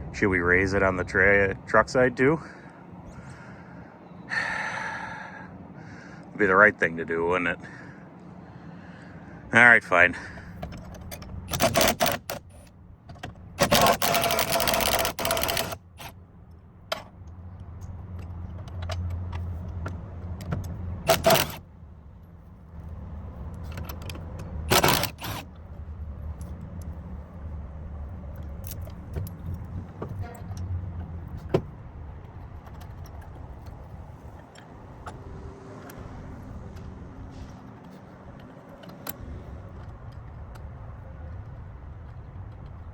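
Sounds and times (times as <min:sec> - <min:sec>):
metal parts clanking: 0:10.5 - 0:16.1, 0:20.4 - 0:21.6, 0:23.6 - 0:25.4
small clicks: 0:13.6 - 0:16.2.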